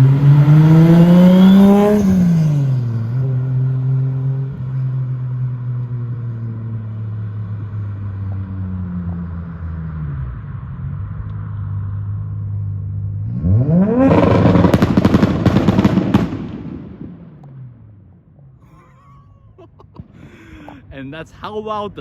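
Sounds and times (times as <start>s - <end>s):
car engine idling and revving: 0.0s - 16.3s
exhaust bangs and cracks: 13.3s - 18.0s.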